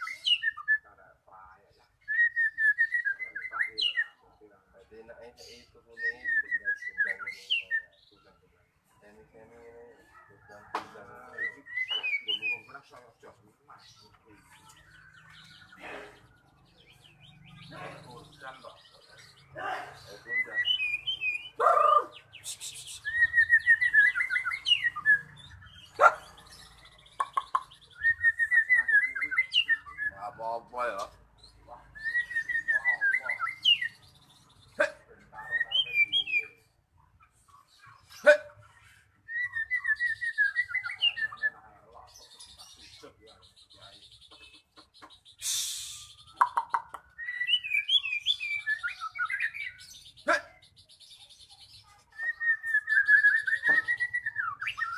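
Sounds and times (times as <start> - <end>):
sharp bird chirps: 0.0 - 4.5, 10.1 - 13.1, 13.7 - 54.9
bird singing trilled notes: 0.0 - 54.9
short hiss: 45.4 - 46.2.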